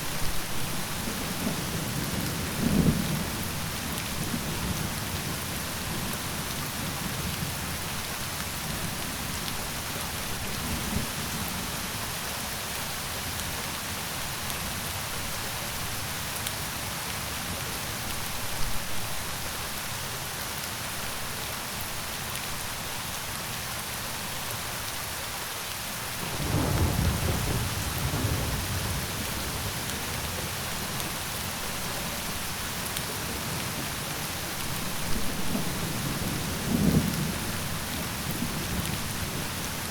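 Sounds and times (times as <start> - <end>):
rain hissing on surfaces: 0.0 - 39.9
low rumble of thunder: 1.0 - 9.0, 26.2 - 32.0, 33.1 - 39.9.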